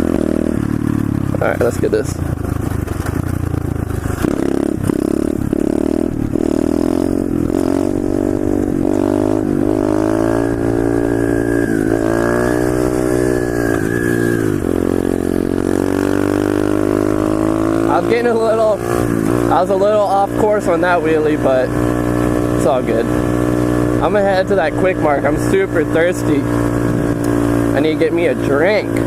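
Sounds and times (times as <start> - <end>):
pit bike engine revving: 0.0 - 29.0.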